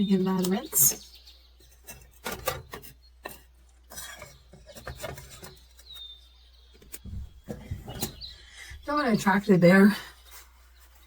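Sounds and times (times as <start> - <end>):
bird chirp: 0.0 - 11.0.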